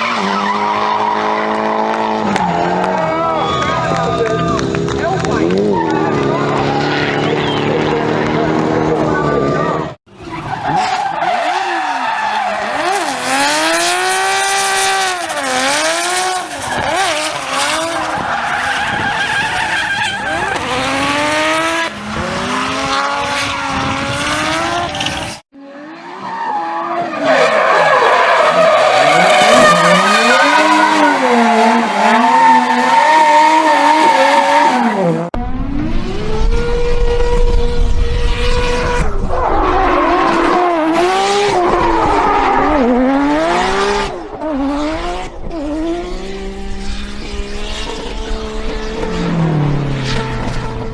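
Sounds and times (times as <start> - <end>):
tyres squealing and skidding: 0.0 - 13.6, 15.2 - 21.2, 24.6 - 35.3, 39.1 - 44.3
car engines revving hard: 0.0 - 50.9.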